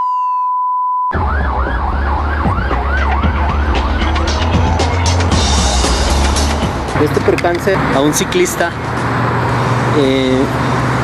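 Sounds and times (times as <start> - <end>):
ambulance siren yelping: 0.0 - 6.4
low rumble of vehicle: 1.2 - 11.0.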